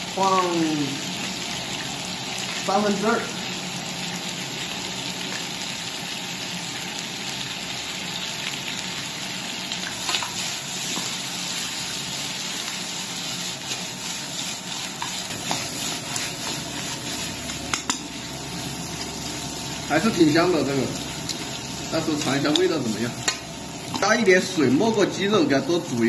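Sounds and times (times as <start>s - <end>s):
chicken sizzling in a pan: 0.0s - 26.0s
chopsticks clicking and scraping pan: 9.9s - 11.3s, 13.6s - 18.2s, 21.2s - 24.2s.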